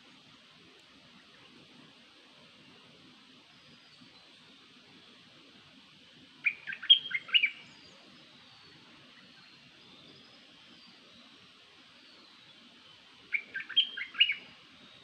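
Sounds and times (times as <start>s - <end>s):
songbird chirping: 6.4s - 11.4s, 12.0s - 15.0s.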